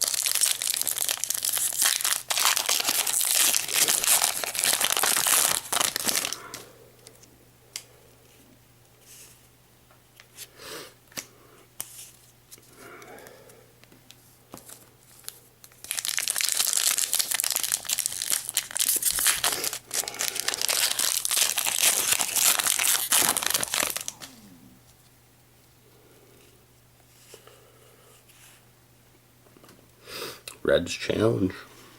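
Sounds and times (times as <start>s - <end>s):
foil wrapper crinkling: 0.0s - 7.3s, 14.5s - 24.4s.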